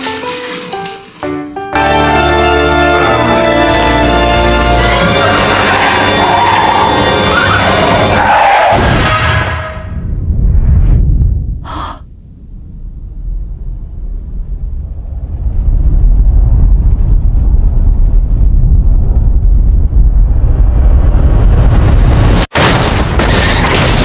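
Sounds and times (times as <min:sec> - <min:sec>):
deep soundtrack rumble: 0:09.8 - 0:22.5.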